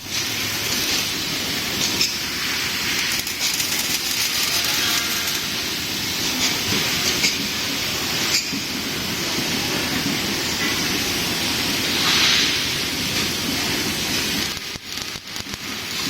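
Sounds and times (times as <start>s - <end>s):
laser welder hissing and crackling: 0.0s - 16.0s.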